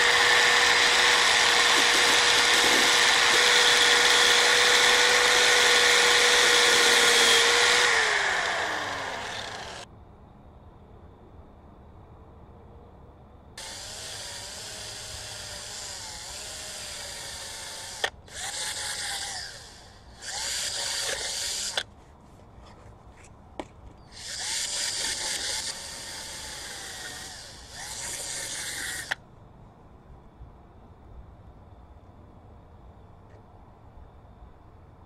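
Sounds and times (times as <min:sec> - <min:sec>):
power tool grinding metal: 0:00.0 - 0:09.8, 0:13.6 - 0:21.8, 0:24.1 - 0:29.2.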